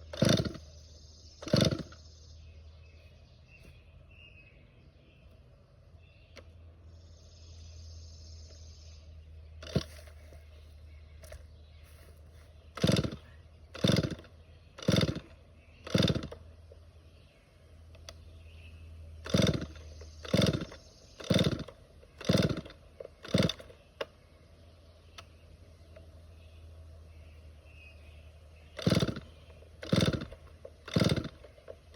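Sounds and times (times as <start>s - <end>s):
chainsaw engine turning over: 0.0s - 0.8s, 1.4s - 2.1s, 9.5s - 10.5s, 12.6s - 16.8s, 19.2s - 24.2s, 28.7s - 31.9s.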